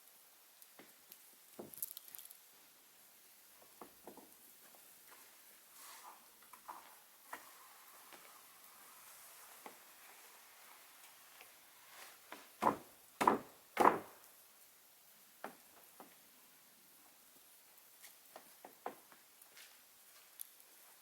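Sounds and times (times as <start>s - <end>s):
loud sharp knocks: 12.6s - 14.2s.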